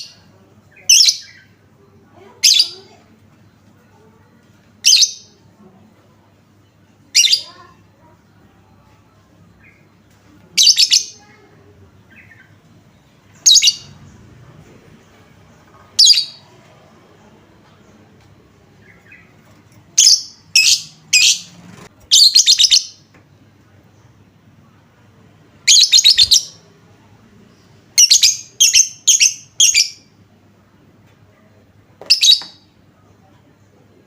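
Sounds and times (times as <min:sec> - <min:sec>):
lovebird chirping and trilling: 0:07.1 - 0:07.6, 0:10.6 - 0:11.2, 0:13.4 - 0:14.0, 0:16.0 - 0:16.4, 0:20.0 - 0:23.0, 0:25.6 - 0:26.6, 0:28.0 - 0:30.1.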